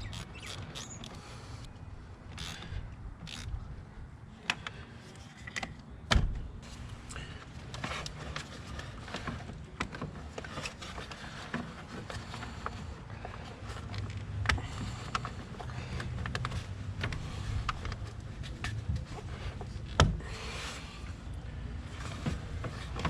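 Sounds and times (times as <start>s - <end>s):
hands and tools clicking on car: 4.4s - 6.3s, 7.1s - 20.3s.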